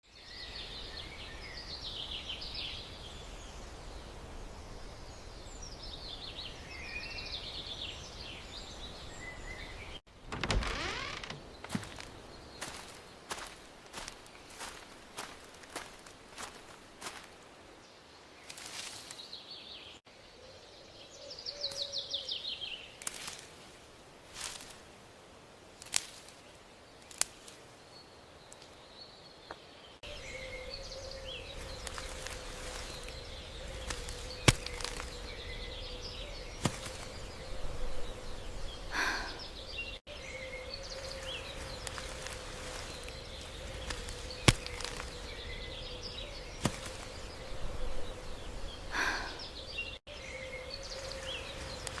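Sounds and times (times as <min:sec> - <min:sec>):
bird chirps: 0:29.1 - 0:52.0.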